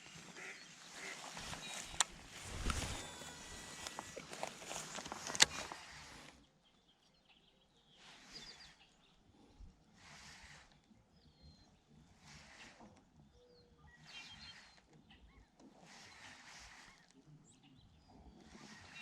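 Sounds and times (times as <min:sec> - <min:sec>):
faint bird chirps: 0:05.6 - 0:19.0.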